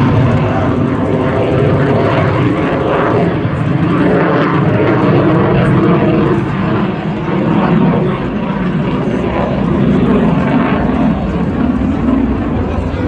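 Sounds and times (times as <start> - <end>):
fighter jet noise: 0.0 - 13.0.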